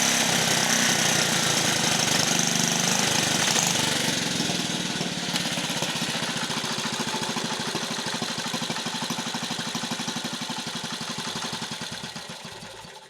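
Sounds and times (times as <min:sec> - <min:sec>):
small gasoline engine running: 0:00.0 - 0:13.0.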